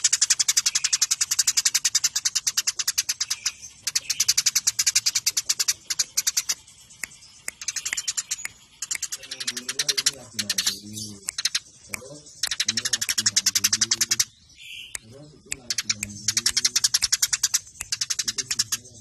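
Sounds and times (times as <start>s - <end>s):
sparrow chirping rapidly: 0.0s - 19.0s.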